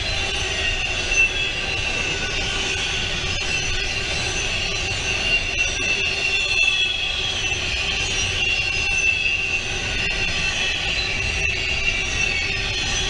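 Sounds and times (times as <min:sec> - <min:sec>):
steel wheels squealing: 0:00.0 - 0:13.0.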